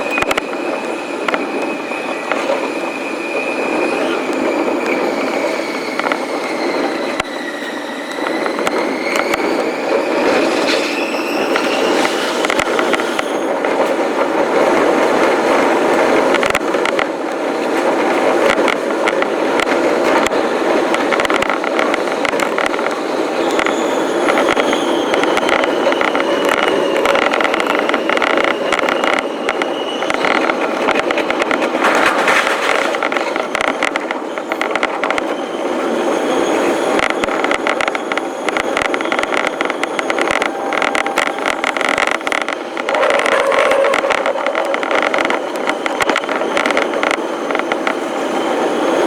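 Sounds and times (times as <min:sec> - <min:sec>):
train motor whine: 0:00.0 - 0:49.0
train wheels on rails: 0:00.0 - 0:49.0
higher whine: 0:36.6 - 0:49.0.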